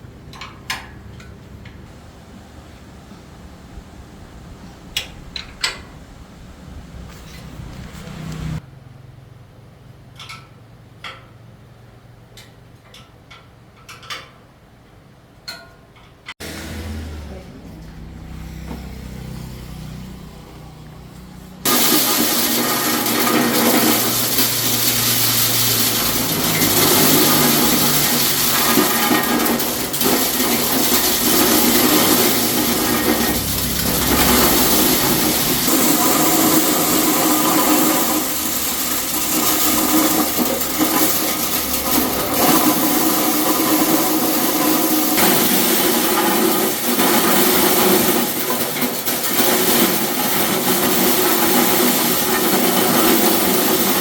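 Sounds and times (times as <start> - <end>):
thresher mechanical noise: 16.4 - 20.7, 21.6 - 54.0.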